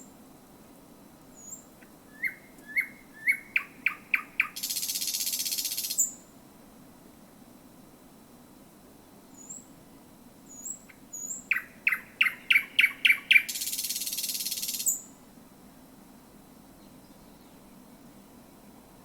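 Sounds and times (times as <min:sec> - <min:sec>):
bird singing with harsh rattle: 0:02.2 - 0:06.2, 0:10.5 - 0:15.1.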